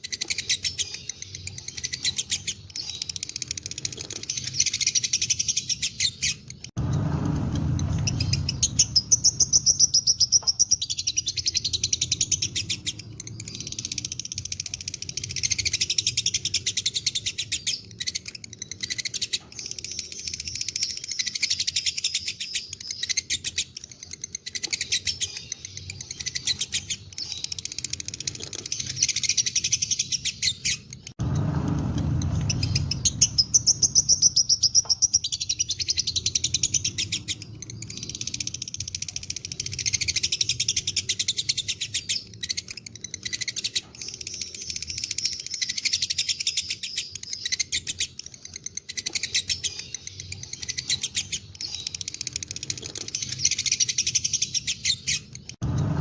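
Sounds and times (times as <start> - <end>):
lovebirds chattering chirps: 0.0 - 56.0
low rumble: 6.7 - 10.0, 31.2 - 34.5, 55.6 - 56.0.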